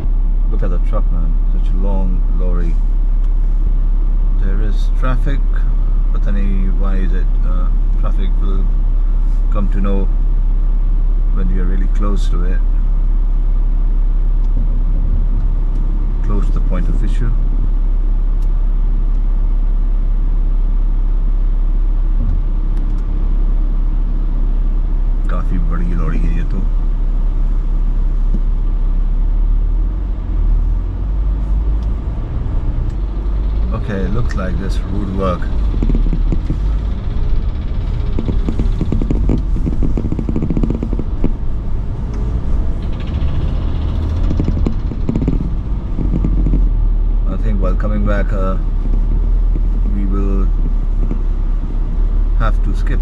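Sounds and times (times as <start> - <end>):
car engine and road noise: 0.0 - 53.0
small clicks and rattles: 32.8 - 46.7.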